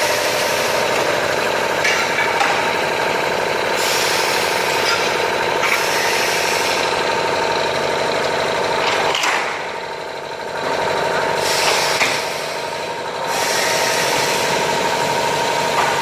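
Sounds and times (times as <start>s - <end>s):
saw motor hum: 0.0s - 8.8s, 9.4s - 16.0s
cutting saw hiss: 13.3s - 14.6s.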